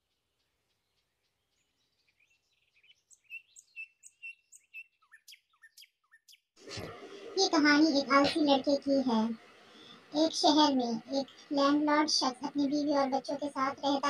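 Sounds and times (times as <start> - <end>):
songbirds chirping and whistling: 0.8 - 7.2, 9.3 - 10.1, 11.0 - 14.0.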